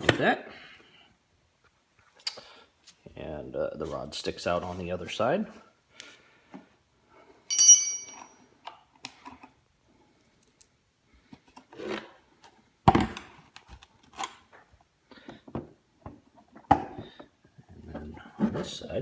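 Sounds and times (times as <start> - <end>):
metallic clink: 7.5 - 8.3.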